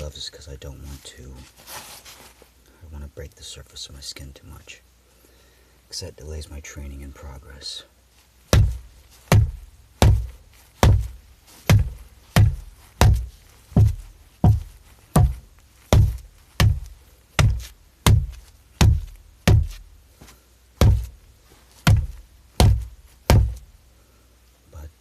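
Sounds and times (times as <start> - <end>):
fists punching a wall: 8.5 - 20.0, 20.8 - 23.8.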